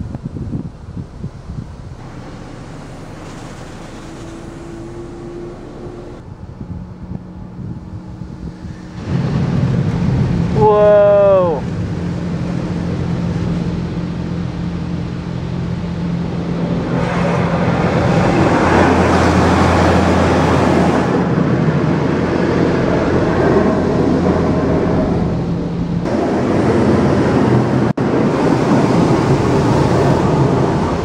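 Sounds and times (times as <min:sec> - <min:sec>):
machine hum: 0:00.8 - 0:10.6
water jets spraying on car body: 0:02.0 - 0:06.2.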